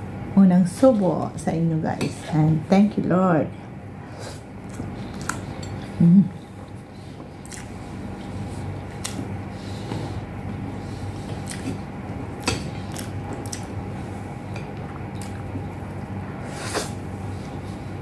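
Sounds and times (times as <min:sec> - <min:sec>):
steady low hum: 0:00.0 - 0:18.0
person chewing food: 0:04.6 - 0:17.6.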